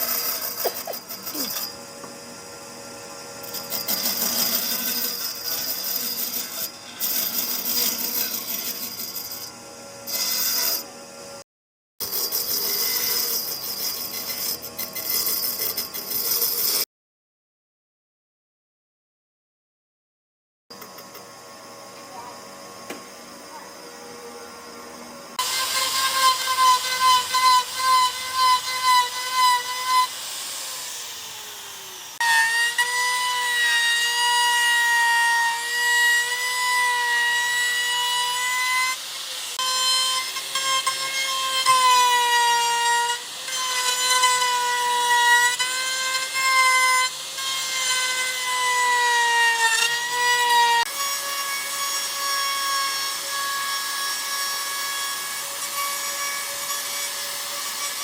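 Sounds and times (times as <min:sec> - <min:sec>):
power tool motor whining: 0:00.0 - 0:10.9, 0:23.8 - 0:34.4.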